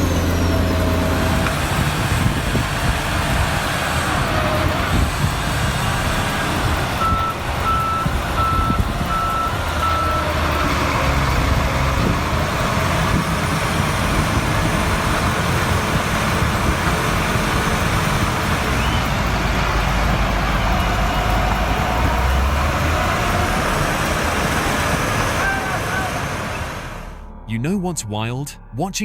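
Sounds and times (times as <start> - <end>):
heavy vehicle engine running: 0.0 - 27.4
reversing alarm beeping: 5.7 - 10.6.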